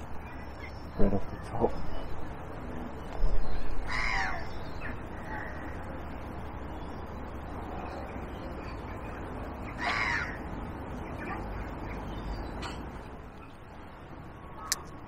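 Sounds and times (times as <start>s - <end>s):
crow-like bird calling: 3.8s - 5.8s, 9.7s - 10.4s.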